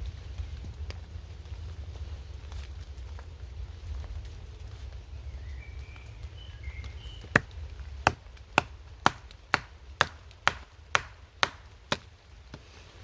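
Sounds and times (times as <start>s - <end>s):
chopping blows splitting wood: 7.3s - 12.2s.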